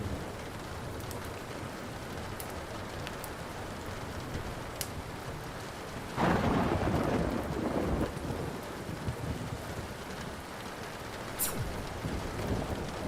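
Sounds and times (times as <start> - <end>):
steady rain hiss: 0.0 - 13.0
thunder rumbling: 6.1 - 10.0, 11.5 - 13.0
wood fire crackling pops: 11.3 - 12.0.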